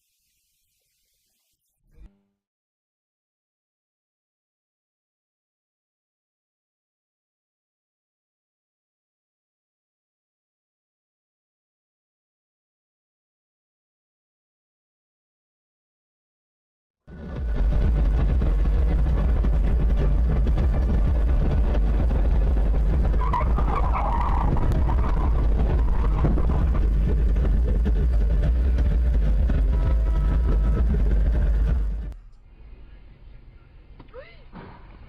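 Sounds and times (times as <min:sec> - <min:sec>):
car rumbling on the move: 0:17.1 - 0:33.8.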